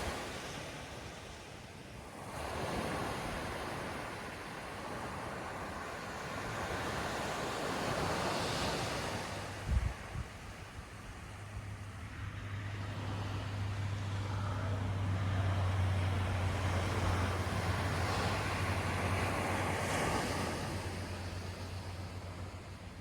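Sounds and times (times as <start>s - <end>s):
ocean wave rushing in: 0.0s - 23.0s
steady low hum: 11.4s - 23.0s.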